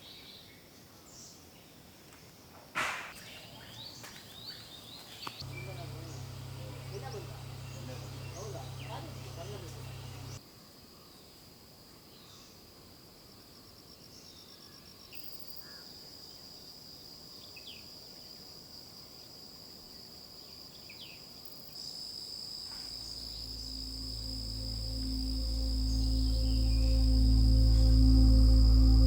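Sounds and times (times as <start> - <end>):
bird chirps: 3.2 - 10.4, 22.8 - 29.0
insects trilling chorus: 3.2 - 10.4, 21.0 - 29.0
soft music: 5.5 - 10.3, 23.1 - 29.0.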